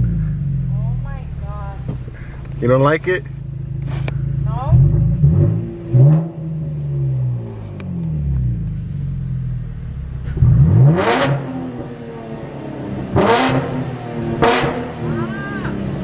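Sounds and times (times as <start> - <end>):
car exhaust revving: 0.0 - 16.0.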